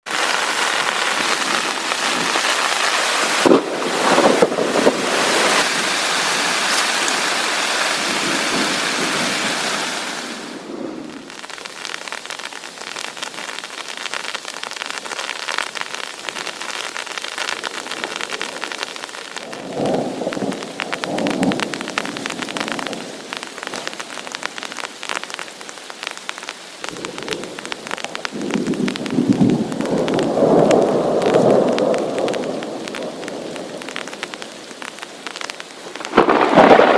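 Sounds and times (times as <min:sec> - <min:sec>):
heavy rain falling: 0:00.0 - 0:36.9
thunder rumbling: 0:00.2 - 0:11.5, 0:17.8 - 0:25.4, 0:26.8 - 0:36.9.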